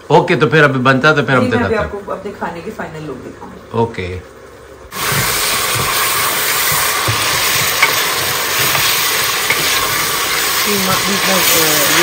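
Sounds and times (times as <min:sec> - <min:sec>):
meat sizzling in hot oil: 0:04.9 - 0:12.0
spatula scraping pot: 0:05.0 - 0:12.0.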